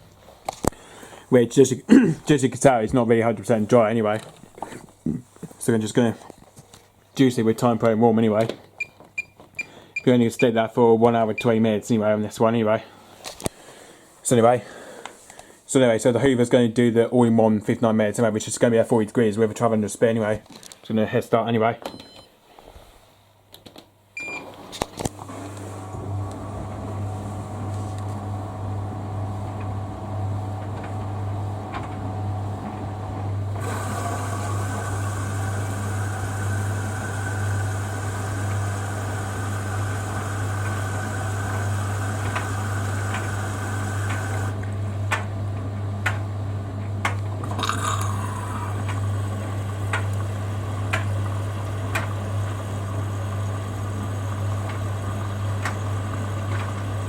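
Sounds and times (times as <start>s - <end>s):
water rushing into washer: 24.3s - 57.0s.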